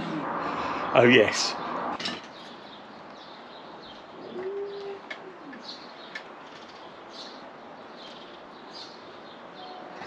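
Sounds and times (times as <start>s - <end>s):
small birds chirping: 0.4s - 10.0s
pigeon cooing: 4.2s - 5.8s.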